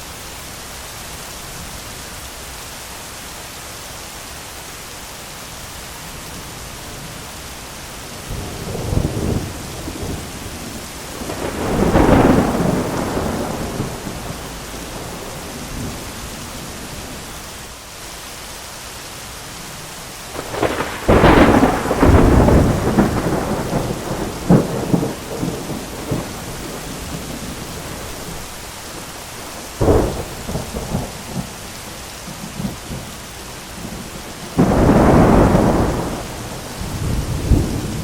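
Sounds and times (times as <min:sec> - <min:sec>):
heavy rain: 0:00.0 - 0:38.0
thunder rumbling and cracking: 0:08.3 - 0:16.7, 0:20.3 - 0:28.5, 0:29.6 - 0:31.6, 0:33.8 - 0:38.0.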